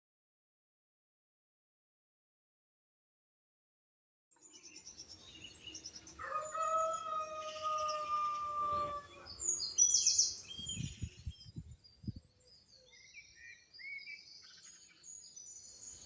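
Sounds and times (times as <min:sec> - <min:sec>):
small birds chirping: 0:04.4 - 0:16.0
rooster crowing: 0:06.2 - 0:09.3.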